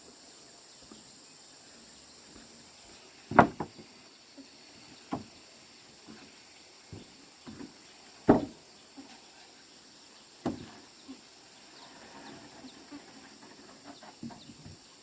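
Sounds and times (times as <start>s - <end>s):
heavy thumps: 3.2s - 4.0s, 5.0s - 5.4s, 6.9s - 8.6s, 10.4s - 10.9s.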